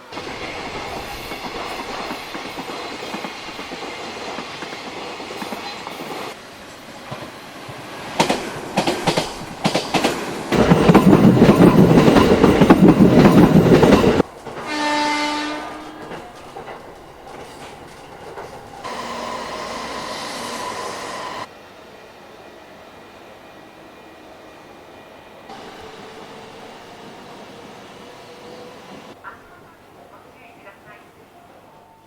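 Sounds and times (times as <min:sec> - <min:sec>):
rail running noise: 0:00.0 - 0:32.0
train passing at speed: 0:00.0 - 0:32.0
train horn: 0:14.4 - 0:16.5, 0:18.8 - 0:21.5.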